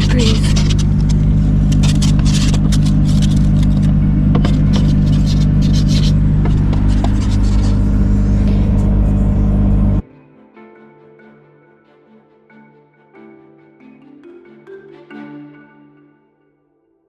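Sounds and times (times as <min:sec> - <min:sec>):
car engine idling: 0:00.0 - 0:10.0
scraping frosted windscreen: 0:00.0 - 0:10.0.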